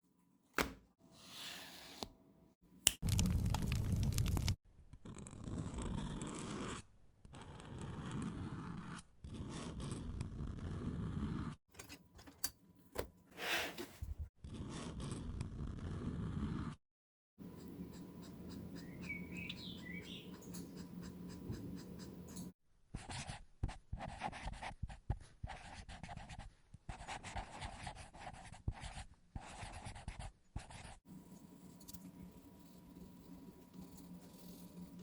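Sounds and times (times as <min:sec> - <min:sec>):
markers scratching on paper: 0:05.4 - 0:11.5, 0:17.4 - 0:35.0
wavering chirp: 0:18.8 - 0:20.4.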